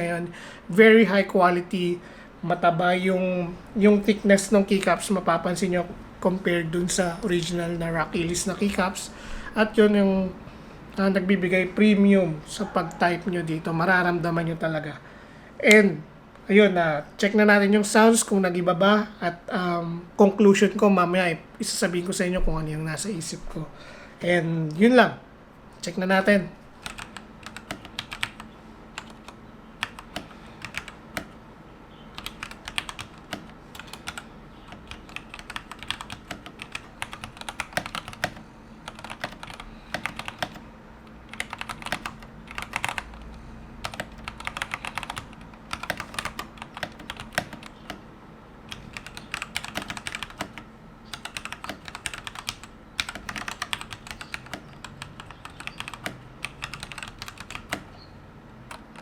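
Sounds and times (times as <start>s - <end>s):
mechanical keyboard typing: 26.8s - 31.4s, 32.1s - 40.6s, 41.3s - 48.0s, 48.7s - 57.9s, 58.7s - 59.0s.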